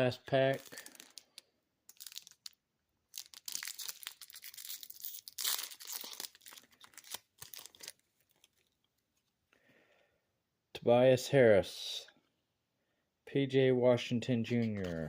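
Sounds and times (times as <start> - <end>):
wrapper tearing and crinkling: 0.5 - 8.6.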